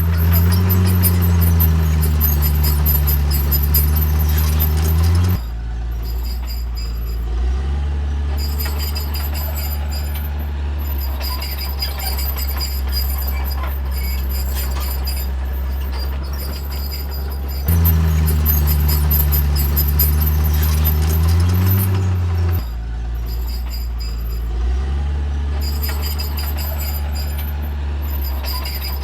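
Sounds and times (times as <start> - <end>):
faint high-pitched squeals: 0.0 - 24.8, 25.5 - 29.0
heavy diesel engine running: 0.0 - 29.0.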